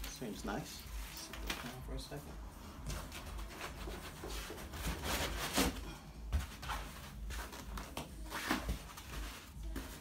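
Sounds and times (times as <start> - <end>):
packing foam rustling and scraping: 3.5 - 5.9.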